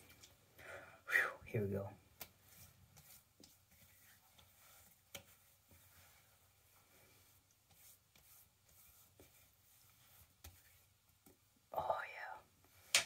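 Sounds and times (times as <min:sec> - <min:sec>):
hands rubbing on face: 0:02.2 - 0:11.4.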